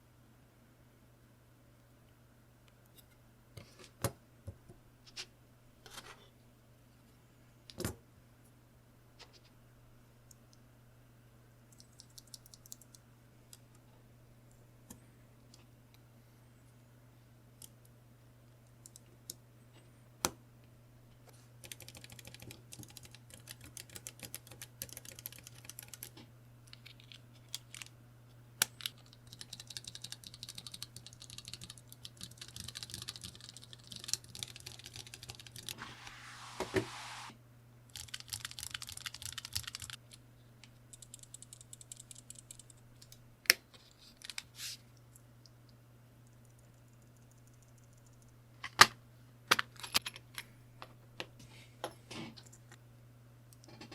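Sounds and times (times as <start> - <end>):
mechanical keyboard typing: 11.7 - 13.0, 21.6 - 26.1, 28.7 - 35.7, 37.9 - 40.0, 40.9 - 43.1.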